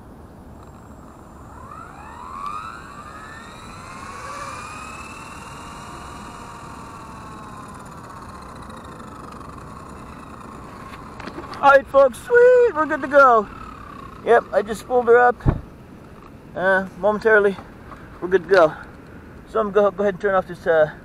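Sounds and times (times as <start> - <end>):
rc helicopter motor whine: 0.0 - 16.3.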